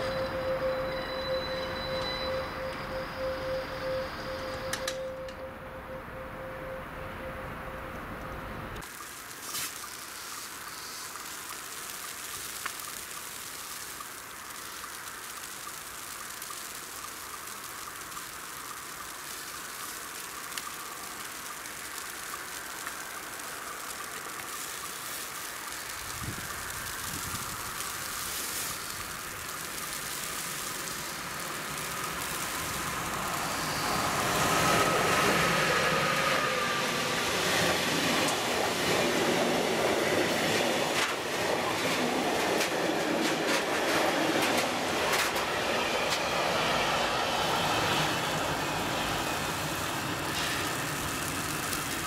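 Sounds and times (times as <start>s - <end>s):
locomotive whine: 0.0s - 8.9s, 20.2s - 52.0s
train wagons rumbling: 32.9s - 52.0s.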